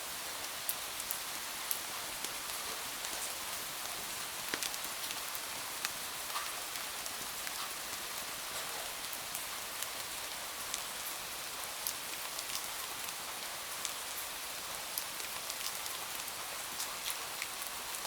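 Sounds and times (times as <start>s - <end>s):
rain falling: 0.0s - 18.0s
sharp raindrop ticks: 4.4s - 6.9s.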